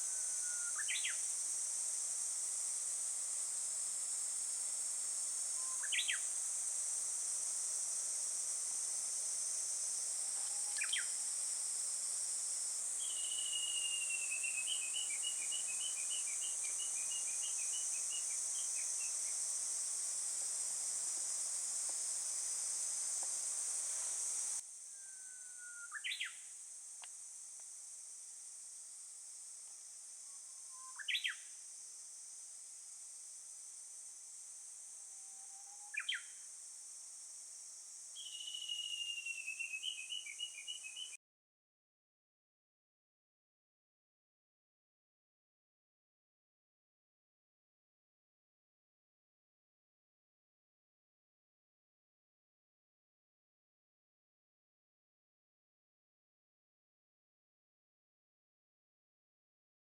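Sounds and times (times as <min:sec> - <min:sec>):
insect chorus: 0:00.0 - 0:41.2
songbird calls: 0:00.4 - 0:01.2, 0:05.6 - 0:06.3, 0:10.7 - 0:11.2, 0:13.0 - 0:19.2, 0:25.0 - 0:26.4, 0:30.6 - 0:31.4, 0:35.8 - 0:36.3, 0:38.2 - 0:41.2
bird trill: 0:38.2 - 0:41.2.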